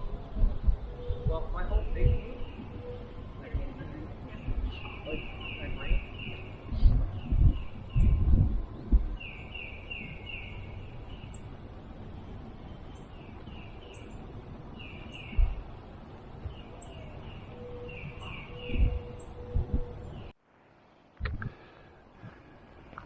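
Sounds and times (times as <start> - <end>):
low thumps: 0.0 - 9.3, 15.3 - 16.7, 18.1 - 20.3
outdoor hiss: 9.2 - 19.4, 20.0 - 23.0.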